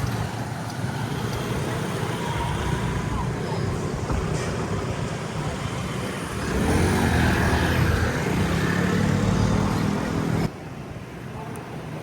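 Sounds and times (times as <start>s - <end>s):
traffic rumble: 0.0s - 12.0s
vehicle engine passing by: 6.3s - 10.5s.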